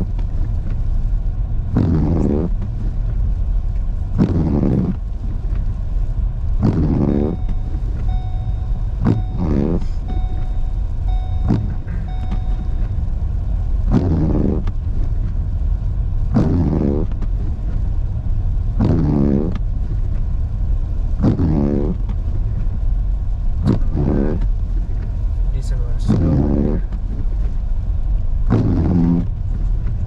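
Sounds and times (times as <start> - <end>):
car road rumble: 0.0 - 30.0
windshield wiper click: 1.8 - 5.8, 6.5 - 15.4
wiper blade squeaking on glass: 6.6 - 13.0.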